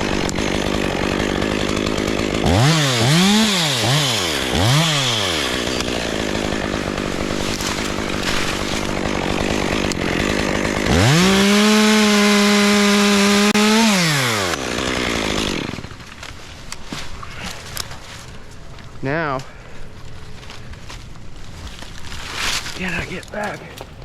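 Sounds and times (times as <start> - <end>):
chainsaw revving: 0.0 - 16.0.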